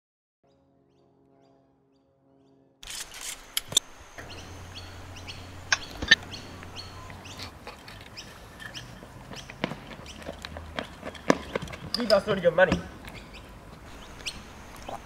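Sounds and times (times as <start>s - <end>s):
birds chirping: 2.8s - 15.0s
low steady hum: 2.9s - 8.8s, 13.8s - 15.0s.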